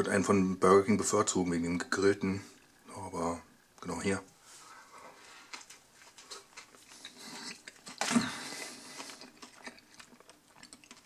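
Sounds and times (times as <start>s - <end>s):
person chewing food: 5.4s - 11.0s.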